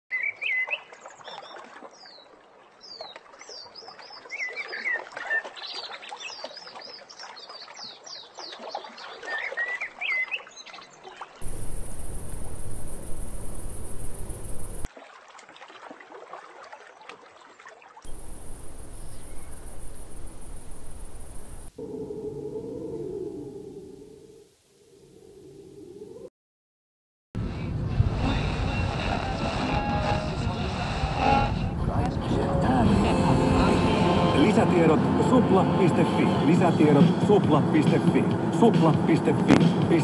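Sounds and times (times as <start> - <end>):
small birds chirping and singing: 18.1 - 20.8.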